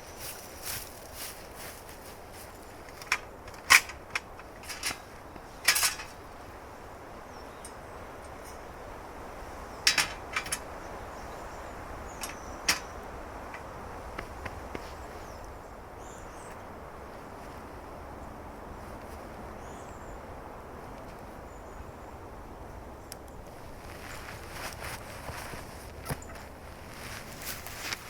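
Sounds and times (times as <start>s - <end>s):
outdoor background hiss: 0.0s - 28.0s
objects clicking and knocking: 5.6s - 6.2s, 9.9s - 10.7s.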